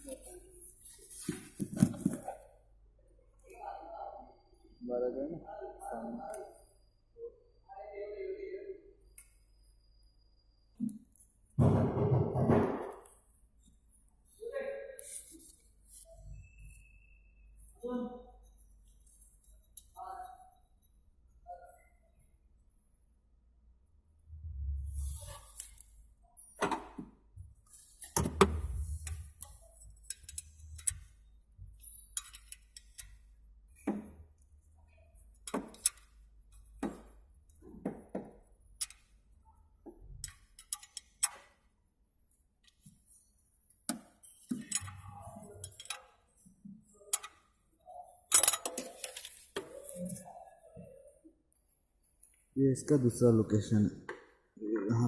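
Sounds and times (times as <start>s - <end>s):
metallic clicks and clunks of tools: 28.0s - 34.1s, 35.2s - 37.6s, 38.8s - 39.1s, 40.1s - 41.6s, 43.8s - 46.2s, 47.1s - 47.6s, 48.3s - 49.9s.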